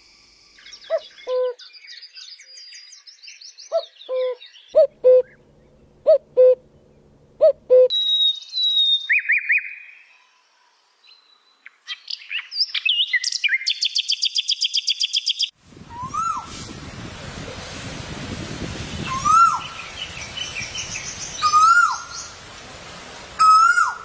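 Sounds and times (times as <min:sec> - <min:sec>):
high bird chirps and whistles: 0:07.9 - 0:09.9, 0:11.9 - 0:16.5.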